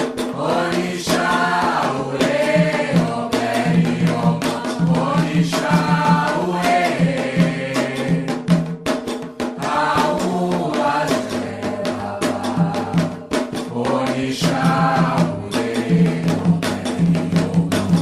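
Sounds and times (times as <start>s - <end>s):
voices singing chant: 0.0s - 8.7s, 9.4s - 18.0s
rapid percussion: 0.0s - 18.0s.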